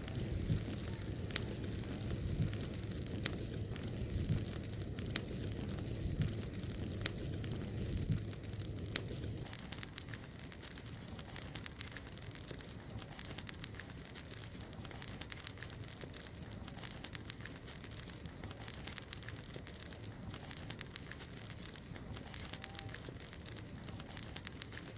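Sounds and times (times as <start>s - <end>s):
bonfire crackling: 0.0s - 24.9s.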